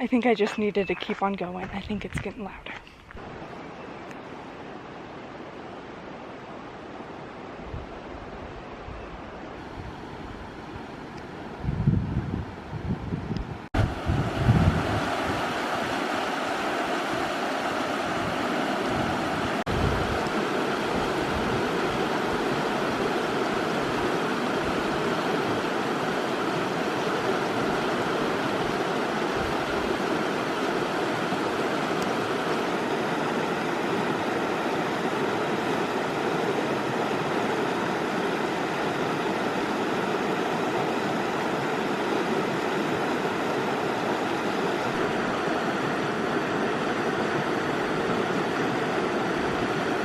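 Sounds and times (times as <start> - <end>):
stream water rushing: 3.1 - 11.7, 13.7 - 50.0.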